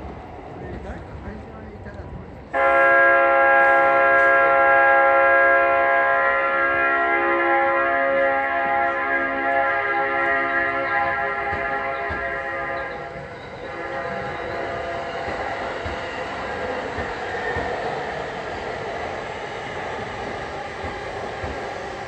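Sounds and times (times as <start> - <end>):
electric train rumbling: 0.0 - 22.0
train wheel clicks: 11.4 - 18.7, 19.6 - 22.0.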